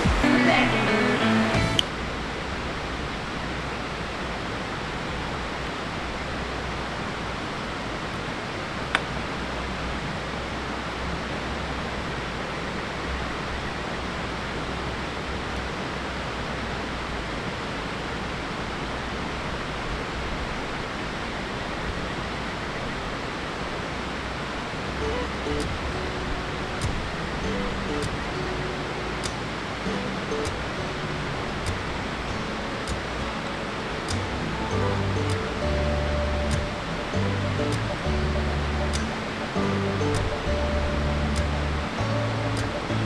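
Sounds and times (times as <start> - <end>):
mountain stream rushing: 0.0 - 43.0
sharp click: 26.8 - 27.0, 28.0 - 28.3, 31.7 - 32.0, 34.1 - 34.4, 35.2 - 35.6, 36.5 - 36.8, 38.9 - 39.3, 40.0 - 40.5, 42.5 - 42.9.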